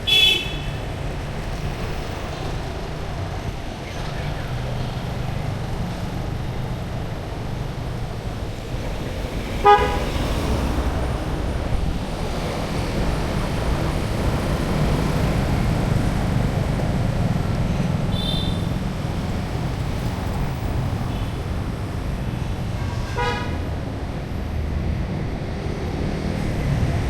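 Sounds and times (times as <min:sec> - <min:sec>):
street traffic rumble: 0:00.0 - 0:27.0
vehicle horn toot: 0:00.1 - 0:00.8, 0:09.6 - 0:10.1, 0:18.1 - 0:18.8, 0:22.8 - 0:23.6.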